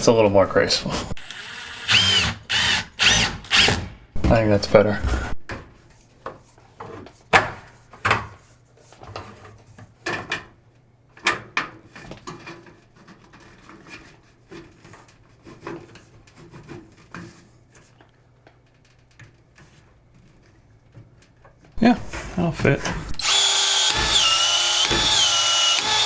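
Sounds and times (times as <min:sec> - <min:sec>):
knocks against wood framing: 0:22.9 - 0:26.0.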